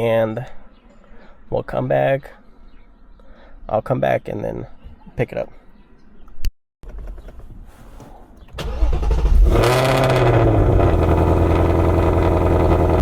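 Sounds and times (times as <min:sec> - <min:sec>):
car engine starting and idling: 0:08.4 - 0:13.0.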